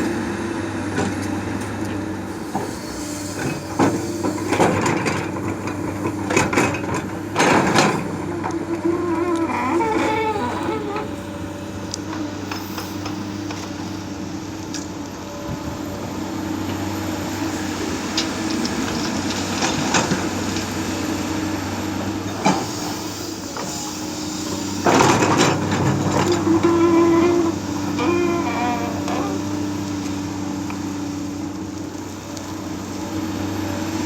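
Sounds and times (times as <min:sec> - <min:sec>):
excavator diesel engine running: 0:00.0 - 0:34.0
soil being dug or dumped: 0:22.6 - 0:31.1.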